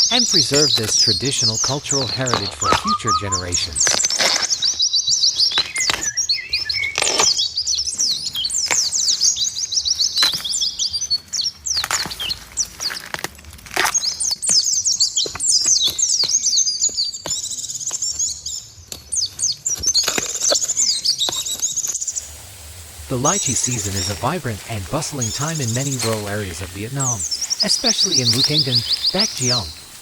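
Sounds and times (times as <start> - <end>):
small birds chirping: 0.0 - 13.1, 13.8 - 30.0.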